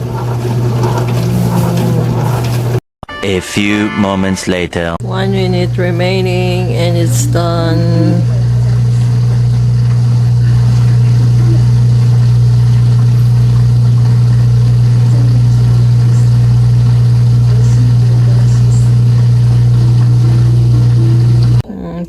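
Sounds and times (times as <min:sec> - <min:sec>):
dishwasher humming: 0:00.0 - 0:02.8, 0:03.8 - 0:21.6.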